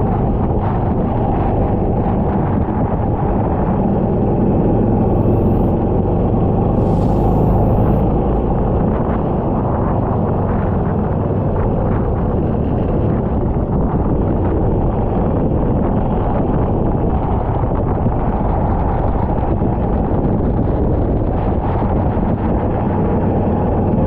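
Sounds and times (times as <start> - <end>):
go-kart engine running: 0.0 - 24.0
wind buffeting microphone: 0.0 - 24.0.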